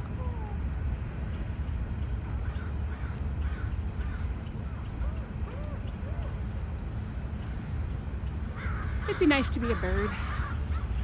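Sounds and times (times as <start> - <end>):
birds chirping: 1.2 - 11.0
faint arching bird calls: 1.3 - 6.5, 8.2 - 11.0.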